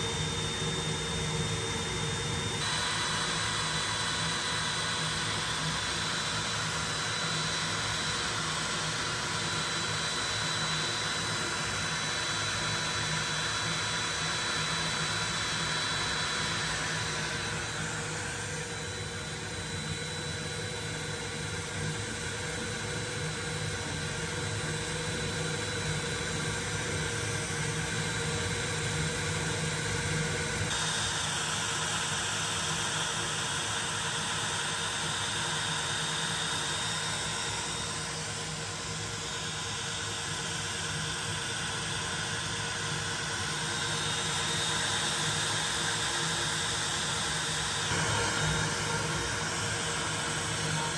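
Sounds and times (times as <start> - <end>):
router whining while cutting wood: 0.0 - 50.9.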